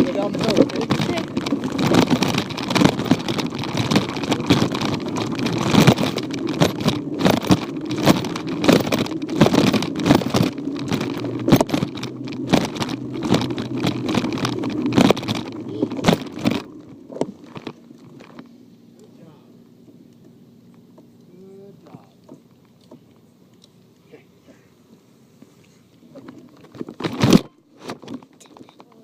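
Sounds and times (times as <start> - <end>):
frame knocks and rattles: 0.0 - 18.4
bicycle tyre rumble: 0.0 - 18.6.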